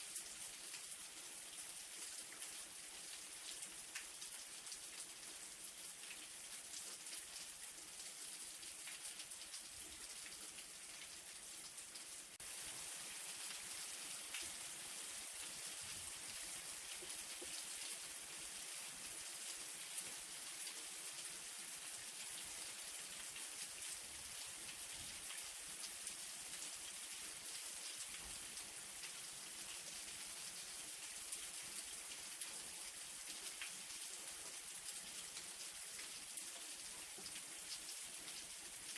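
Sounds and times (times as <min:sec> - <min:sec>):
light rain falling: 0:00.0 - 0:38.9.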